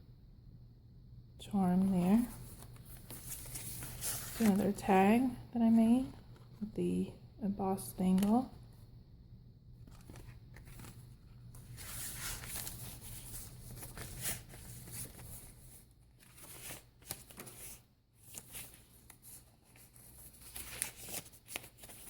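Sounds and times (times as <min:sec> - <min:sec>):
paper rustling and crinkling: 0:02.0 - 0:04.9, 0:09.8 - 0:22.0.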